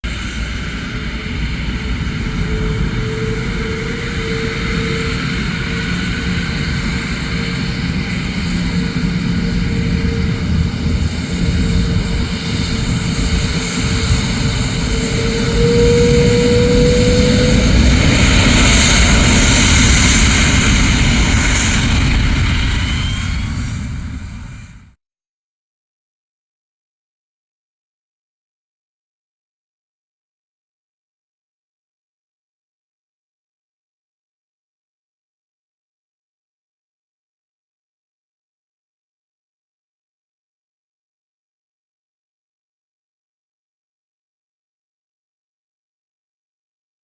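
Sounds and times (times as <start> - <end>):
jet airliner engines running: 0.0 - 25.0.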